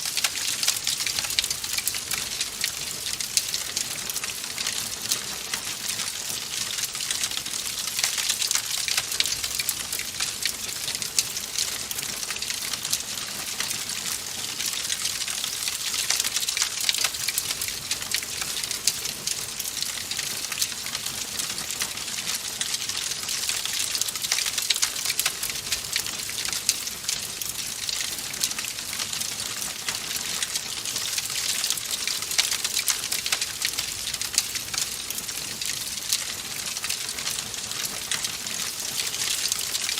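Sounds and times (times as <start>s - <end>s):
fire crackling: 0.0s - 4.6s.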